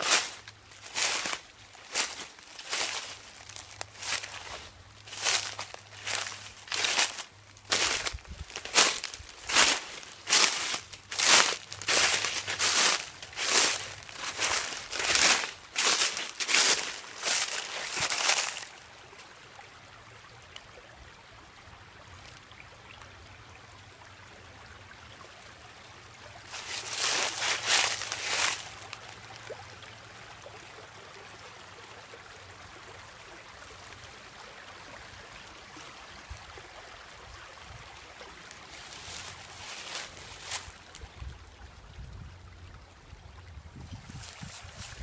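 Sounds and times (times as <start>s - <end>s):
dry leaves crunching underfoot: 0.0s - 18.8s, 26.5s - 29.6s, 38.6s - 41.1s, 44.1s - 45.0s
stream trickling over rocks: 0.0s - 45.0s.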